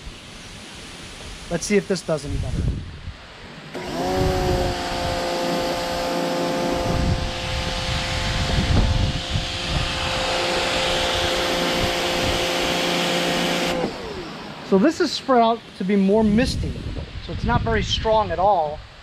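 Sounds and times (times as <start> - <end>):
pressure washer motor whining: 3.7 - 15.3
water spray hissing: 3.8 - 16.2.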